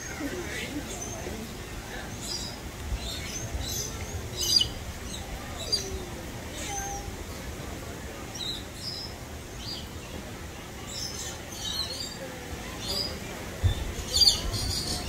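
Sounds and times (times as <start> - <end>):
small birds chirping: 0.0 - 7.1, 10.8 - 15.0.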